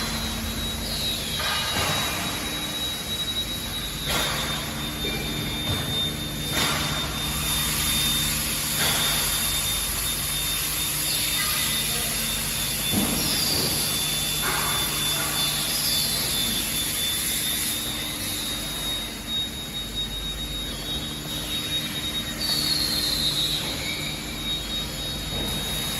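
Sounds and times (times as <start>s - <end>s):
sharp metallic knocks: 0.0s - 9.4s
high whine: 0.0s - 25.9s
machinery hum: 0.0s - 25.9s.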